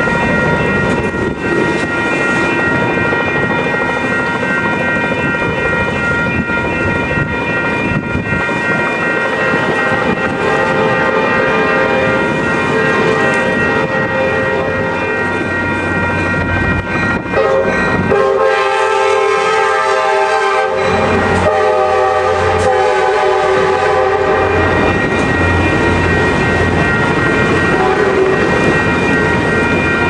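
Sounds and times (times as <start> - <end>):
crossing bell ringing: 0.0 - 30.0
train coaches rumbling and clattering: 0.0 - 30.0
train air horn blasts: 9.8 - 12.2, 17.3 - 24.8, 27.7 - 28.5.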